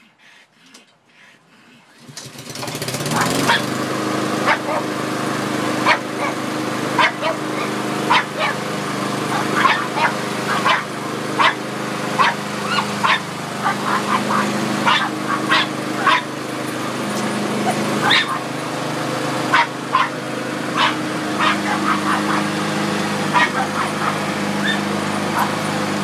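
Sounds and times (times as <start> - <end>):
lawn mower engine running: 2.0 - 26.0
dog barking: 3.1 - 3.8, 4.4 - 4.9, 5.8 - 6.4, 7.0 - 8.6, 9.3 - 11.6, 12.2 - 16.3, 17.6 - 18.5, 19.5 - 20.2, 20.8 - 22.6, 23.3 - 25.6.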